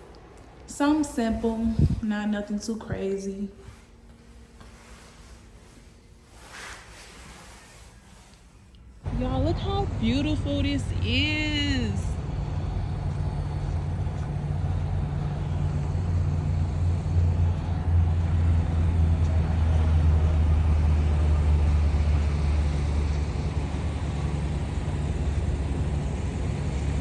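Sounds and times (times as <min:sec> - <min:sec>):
road noise: 0:09.0 - 0:27.0
truck engine droning: 0:09.0 - 0:27.0.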